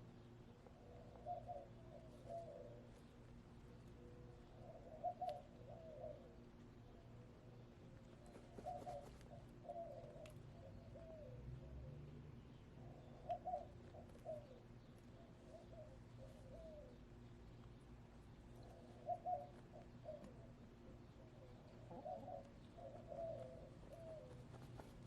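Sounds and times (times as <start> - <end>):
faint steady hum: 0.0 - 25.0
hens clucking softly: 8.1 - 11.2, 18.4 - 25.0.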